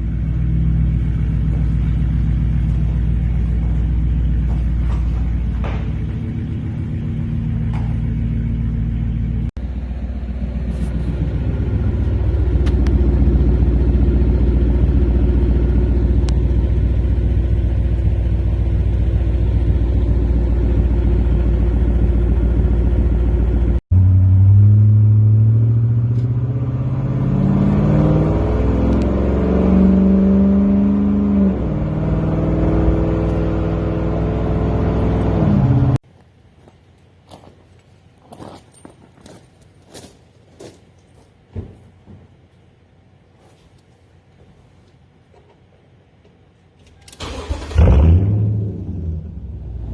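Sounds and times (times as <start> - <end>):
exhaust low rumble: 0.0 - 27.6, 47.3 - 49.9
truck engine revving: 23.4 - 36.0, 47.2 - 49.9.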